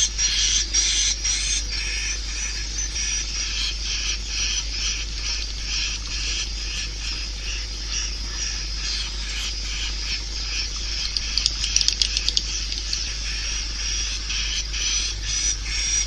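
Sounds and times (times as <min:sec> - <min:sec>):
high twittering bird chirps: 0:00.0 - 0:16.0
steady low hum: 0:00.0 - 0:16.0
sharp clicks: 0:10.8 - 0:13.1.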